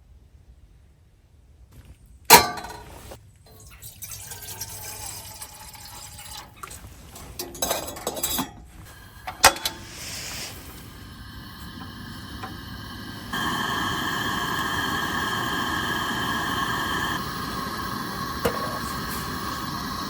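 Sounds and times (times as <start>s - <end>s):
pots and cups clattering: 2.3s - 10.0s
liquid being poured: 2.6s - 19.9s.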